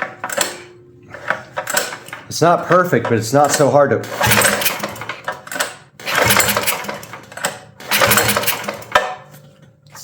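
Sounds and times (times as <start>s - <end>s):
pull starter cranking engine: 0.0s - 9.2s.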